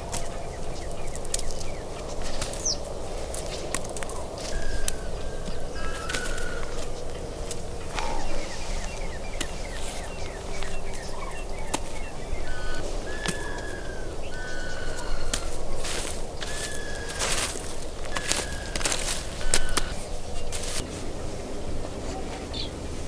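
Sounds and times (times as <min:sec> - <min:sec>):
birds chirping and whistling: 0:00.0 - 0:20.8
low outdoor background: 0:00.0 - 0:23.0.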